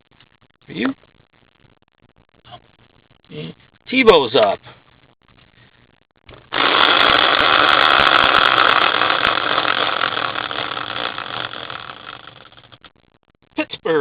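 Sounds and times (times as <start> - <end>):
prize wheel ticking: 6.6 - 12.8.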